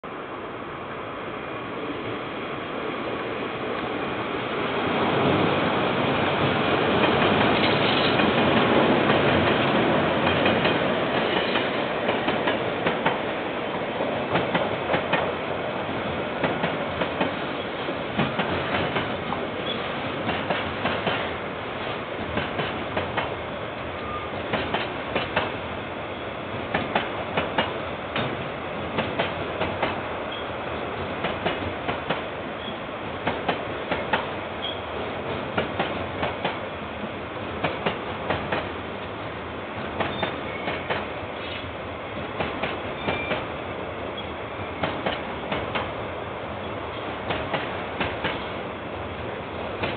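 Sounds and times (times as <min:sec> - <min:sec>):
wheels clacking over rail joints: 0:06.3 - 0:13.2, 0:16.4 - 0:21.3, 0:22.2 - 0:23.4, 0:24.0 - 0:25.6, 0:40.0 - 0:41.6.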